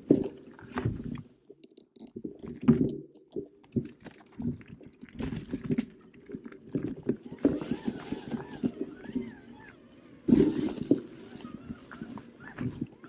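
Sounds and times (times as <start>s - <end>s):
bike jolting over rough trail: 6.8s - 13.0s.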